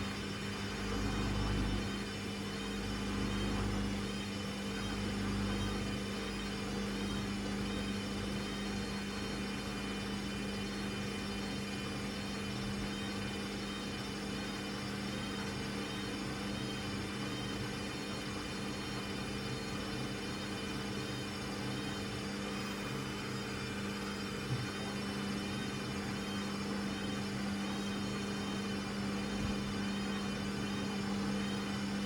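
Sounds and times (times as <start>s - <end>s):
washing machine humming and whirring: 0.0s - 32.0s.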